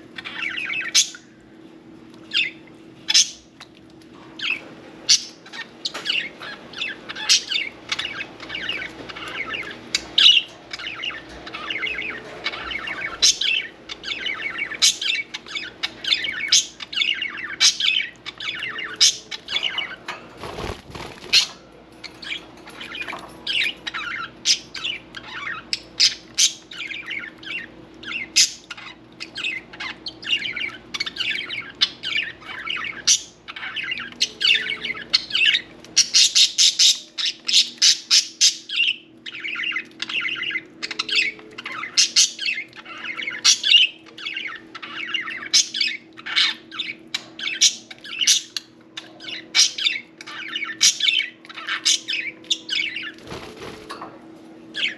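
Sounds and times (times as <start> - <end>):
faint low hum: 0.0 - 54.9
budgerigars chattering: 22.2 - 53.2.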